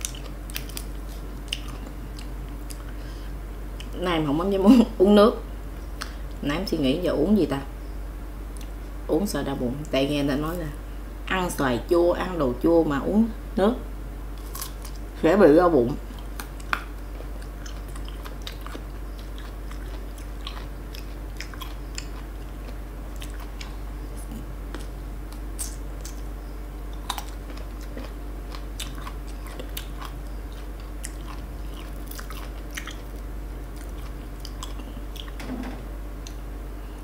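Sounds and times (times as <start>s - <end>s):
crunching and chewing mango: 0.0s - 3.1s, 14.4s - 15.2s, 16.0s - 35.4s
steady low hum: 0.0s - 37.0s.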